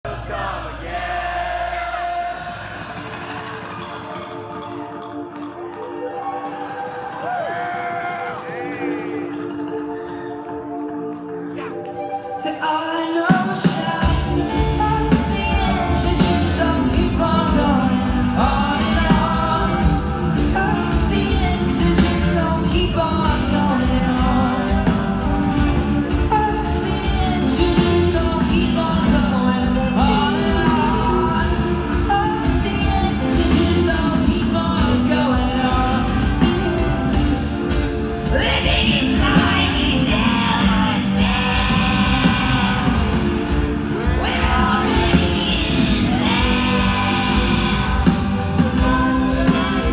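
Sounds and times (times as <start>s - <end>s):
person singing: 0.0s - 49.9s
live rock band playing: 1.2s - 49.9s.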